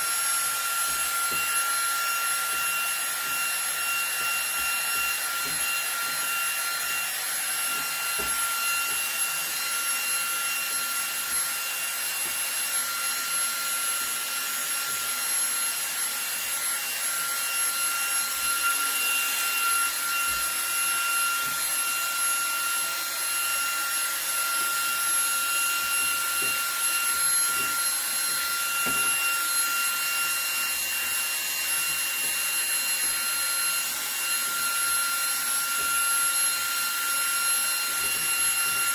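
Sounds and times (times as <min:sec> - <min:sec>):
handheld vacuum motor whine: 0:00.0 - 0:38.9.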